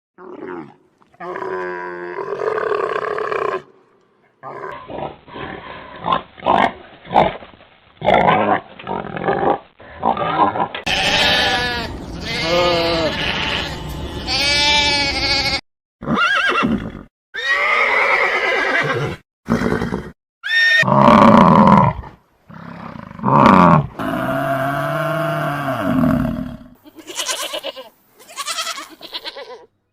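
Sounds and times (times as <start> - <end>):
animals calling: 10.3 - 16.6.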